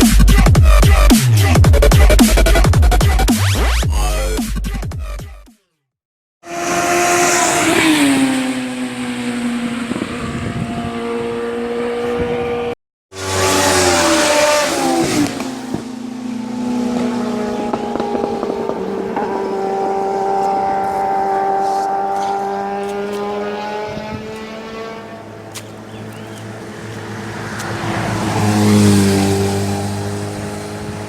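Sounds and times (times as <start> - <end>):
motorcycle engine running: 9.8 - 31.0.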